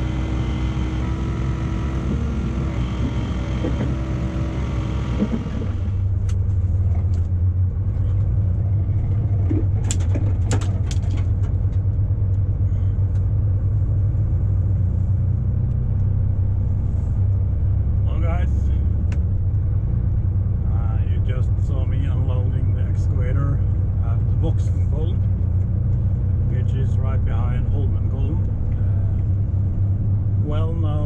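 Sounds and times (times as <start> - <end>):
truck engine rumbling: 0.0 - 31.0
sharp clicks and knocks: 9.4 - 12.4.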